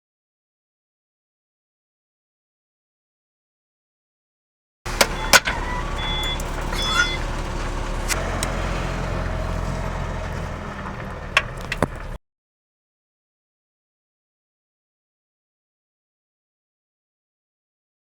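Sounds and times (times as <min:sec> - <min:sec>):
sharp metallic clicks and knocks: 0:04.9 - 0:12.2
short high squeaks: 0:04.9 - 0:12.2
vehicle engine humming: 0:04.9 - 0:12.2.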